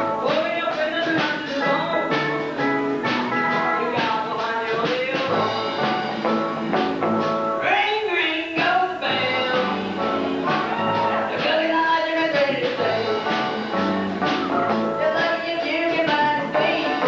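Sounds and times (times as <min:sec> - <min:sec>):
person singing: 0:00.0 - 0:02.7, 0:03.4 - 0:06.7, 0:07.6 - 0:17.0
drum beat: 0:00.0 - 0:07.6, 0:09.5 - 0:15.3
rock band playing: 0:00.0 - 0:07.8, 0:08.6 - 0:17.0.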